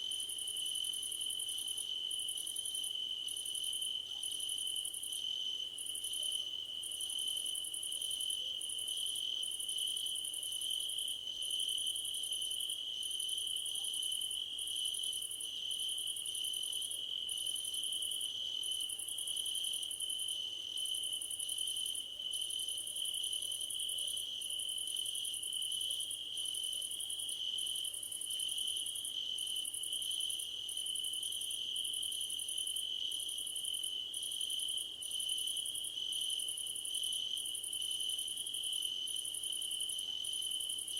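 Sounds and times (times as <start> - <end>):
cricket steady trill: 0.0 - 40.9.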